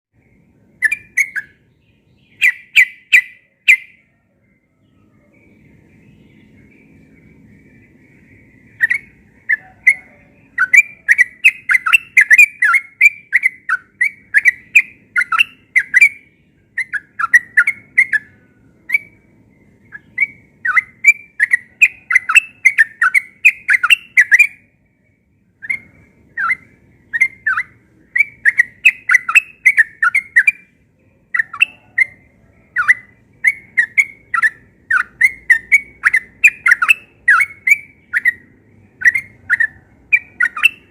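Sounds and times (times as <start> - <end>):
bird singing rapid bubbly notes: 0.2 - 4.0, 5.4 - 24.7, 25.5 - 40.9.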